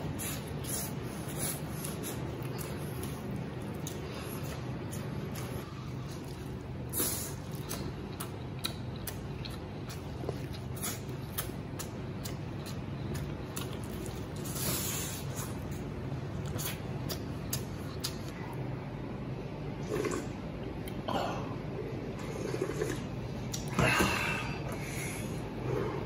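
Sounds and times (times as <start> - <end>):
wet chewing: 0.2 - 15.7
lip-smacks and clicks: 7.5 - 14.0, 16.4 - 18.3.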